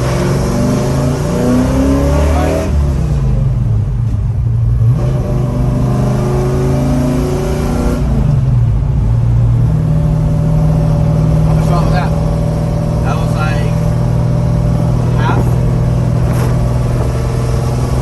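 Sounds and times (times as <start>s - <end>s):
engine revs rising and falling: 0.0s - 3.2s, 4.8s - 8.5s.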